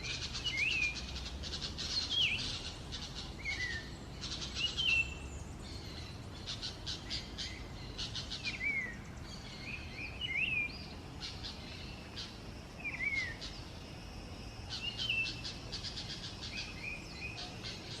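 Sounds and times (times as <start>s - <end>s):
songbird singing rattling notes: 0.0s - 18.0s.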